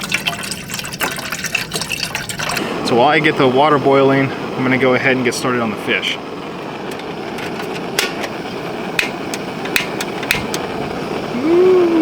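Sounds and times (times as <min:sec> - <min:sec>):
steady hiss: 0:01.2 - 0:12.0
cooking gear clicks and taps: 0:06.8 - 0:08.4, 0:09.0 - 0:10.8
man exclaiming woo-wee: 0:11.3 - 0:12.0.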